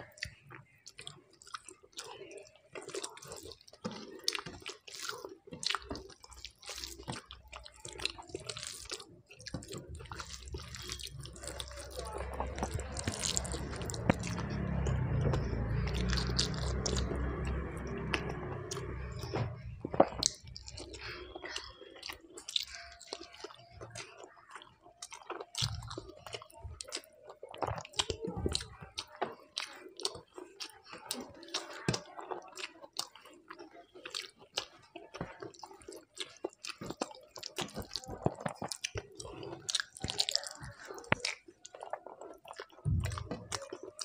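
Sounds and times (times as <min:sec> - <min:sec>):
chewing and wet mouth clicks: 0:00.0 - 0:44.0
low rumble: 0:11.2 - 0:20.8, 0:42.9 - 0:43.4.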